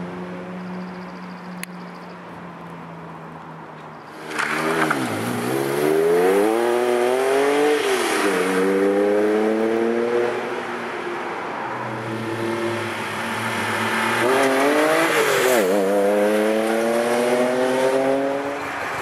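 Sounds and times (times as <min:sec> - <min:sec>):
sports car engine accelerating: 0:04.2 - 0:10.5, 0:12.0 - 0:18.6.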